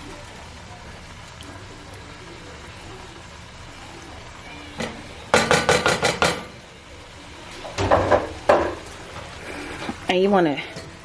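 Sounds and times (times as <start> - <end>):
faint steady background noise: 0.0 - 11.0
utensil knocking against cookware: 4.8 - 6.6.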